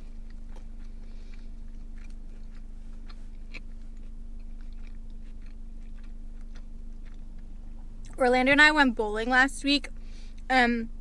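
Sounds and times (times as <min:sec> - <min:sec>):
close-up chewing with crunches: 0:00.0 - 0:08.2
steady low hum: 0:00.0 - 0:11.0.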